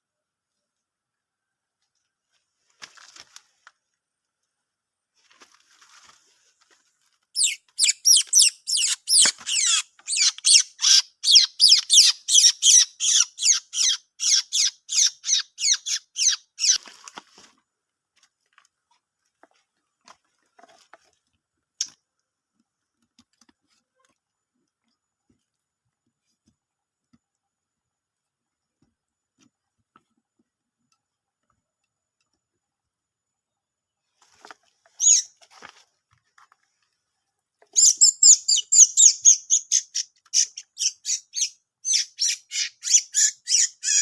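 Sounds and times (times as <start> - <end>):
bird sharp high chirps: 7.4 - 16.8, 35.0 - 35.3, 37.8 - 44.0.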